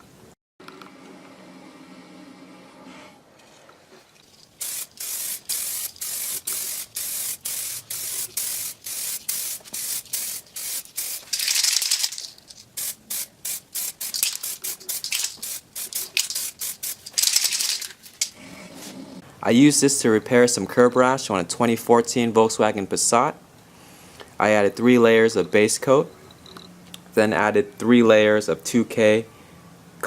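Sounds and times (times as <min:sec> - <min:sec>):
aerosol spray can hissing: 0:04.6 - 0:11.8, 0:12.8 - 0:17.6.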